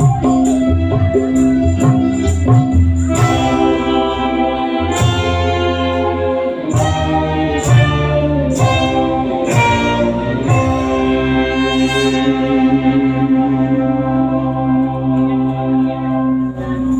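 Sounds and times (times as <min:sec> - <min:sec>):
drum and cymbal hits: 0:00.0 - 0:13.1
band playing through loudspeakers: 0:00.0 - 0:16.9.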